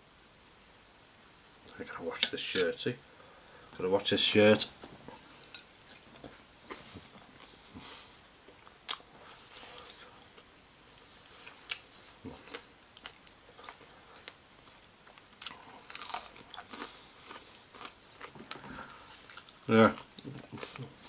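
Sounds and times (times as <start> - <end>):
person chewing crispy chicken: 15.1 - 21.0.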